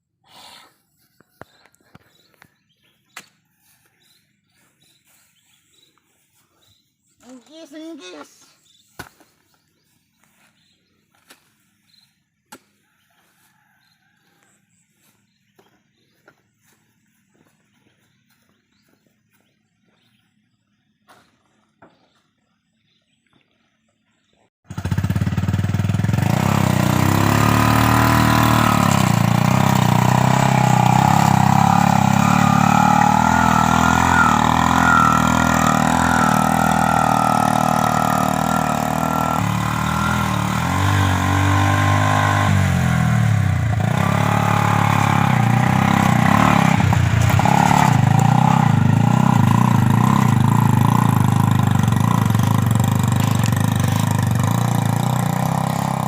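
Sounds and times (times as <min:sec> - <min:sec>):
motorcycle engine running: 0:24.7 - 0:56.0.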